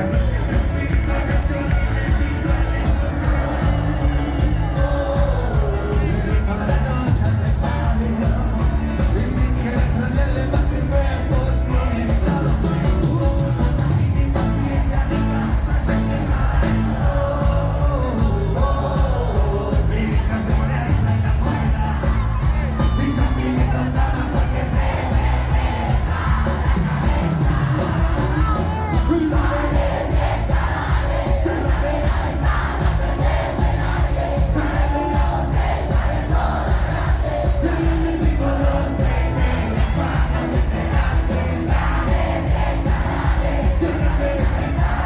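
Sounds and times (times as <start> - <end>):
person singing: 0.0 - 25.2
crowd noise: 0.0 - 45.0
live band playing: 0.0 - 45.0.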